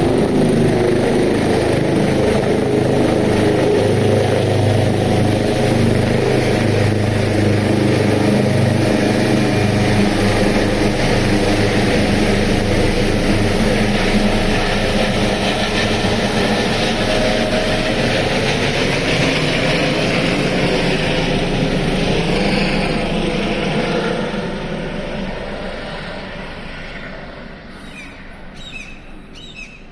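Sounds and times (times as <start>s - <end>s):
helicopter engines and rotor: 0.0s - 29.9s.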